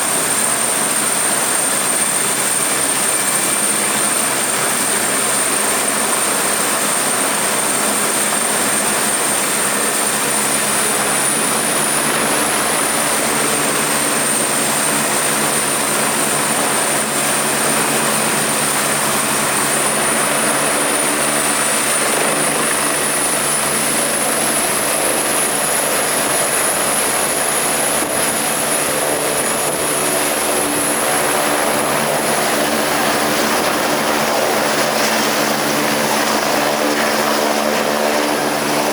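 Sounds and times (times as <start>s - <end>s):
helicopter rotor noise: 0.0s - 38.9s
helicopter turbine whine: 0.0s - 38.9s.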